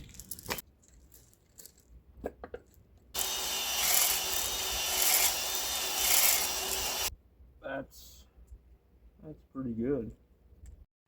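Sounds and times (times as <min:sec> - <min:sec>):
power drill whine: 0:03.2 - 0:07.1.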